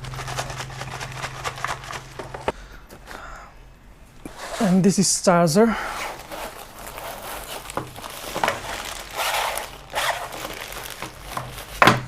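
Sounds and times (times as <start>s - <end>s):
packaging crinkling and rustling: 0.0s - 3.1s, 6.0s - 12.0s.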